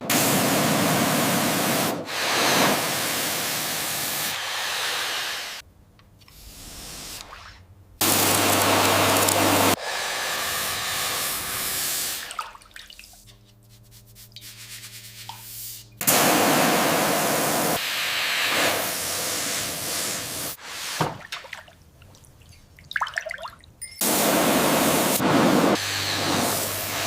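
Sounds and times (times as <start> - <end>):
spray hissing: 0.1 - 5.6, 8.0 - 12.4, 13.9 - 21.0, 24.0 - 27.0.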